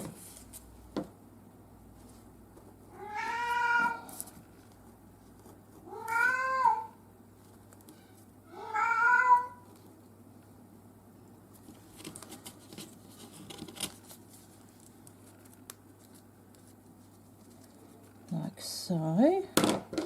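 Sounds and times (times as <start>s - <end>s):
cat meowing: 2.9s - 4.1s, 5.9s - 7.0s, 8.5s - 9.6s.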